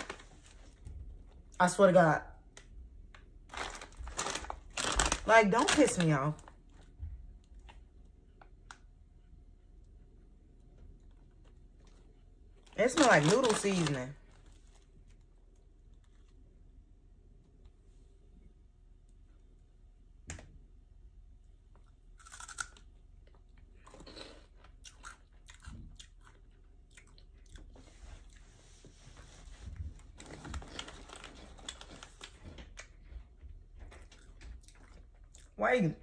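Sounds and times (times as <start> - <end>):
person chewing crunchy snack: 21.8 - 28.4.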